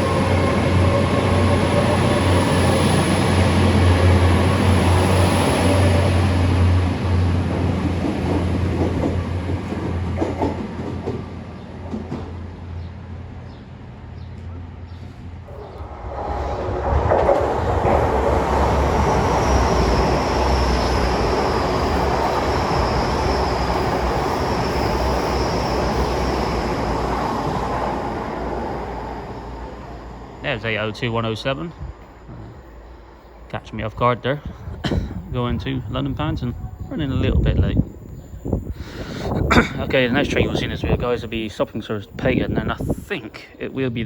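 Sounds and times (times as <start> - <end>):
train running noise: 0.0 - 44.0
train wheels clicking over rails: 7.4 - 12.4
steady high whine: 15.5 - 27.0.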